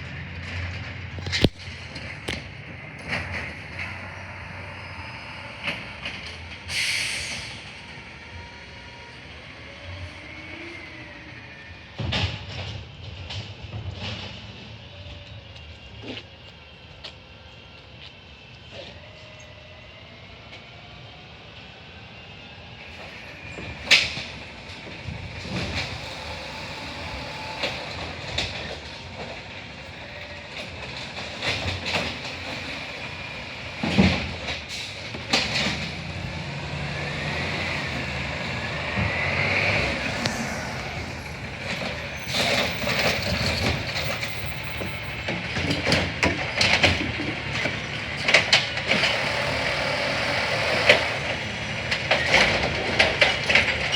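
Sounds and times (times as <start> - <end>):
garbage truck engine: 0.0 - 53.9
hydraulic whine: 23.0 - 30.8, 31.6 - 45.3, 47.7 - 51.6.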